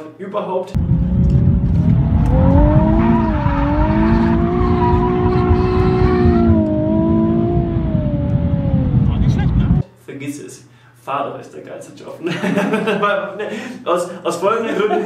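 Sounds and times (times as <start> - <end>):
car engine revving: 0.8 - 9.8
road and wind noise: 0.8 - 9.8.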